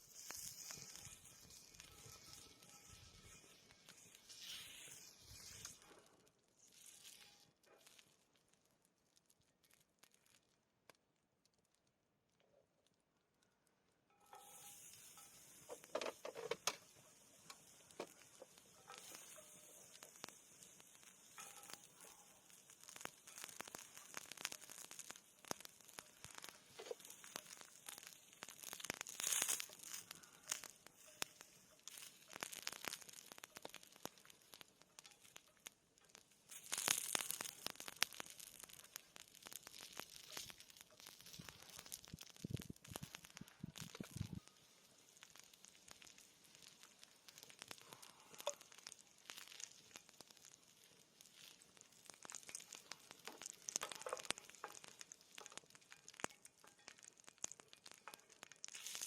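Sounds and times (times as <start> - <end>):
steady hiss: 0.0 - 7.5, 14.3 - 59.0
wood fire crackling: 0.0 - 59.0.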